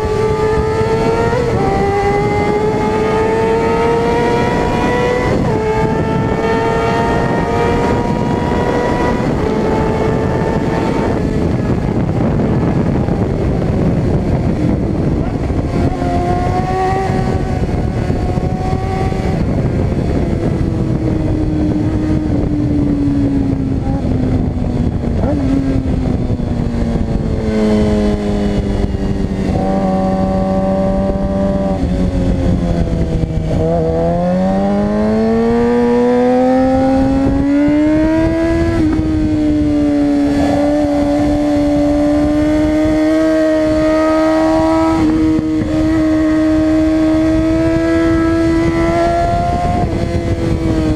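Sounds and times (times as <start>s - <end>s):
motorcycle engine running hard: 0.0s - 50.9s.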